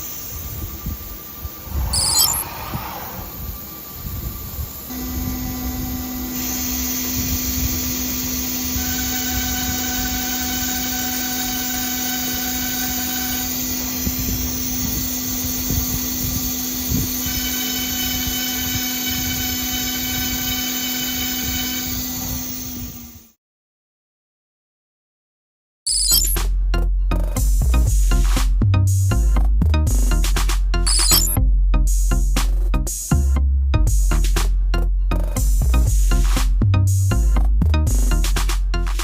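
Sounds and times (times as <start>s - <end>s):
engraving machine spindle whining: 0.0s - 23.3s, 30.9s - 31.4s.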